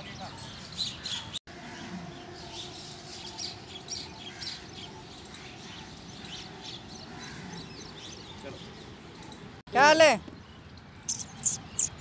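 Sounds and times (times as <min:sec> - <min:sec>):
birds chirping: 0:00.0 - 0:12.0
outdoor background noise: 0:00.0 - 0:12.0.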